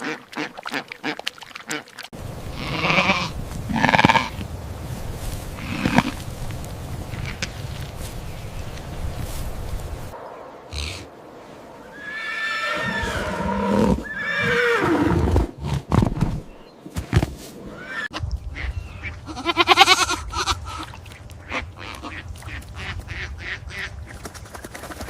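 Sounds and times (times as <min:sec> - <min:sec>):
loud quavering animal call: 0:17.8 - 0:23.9.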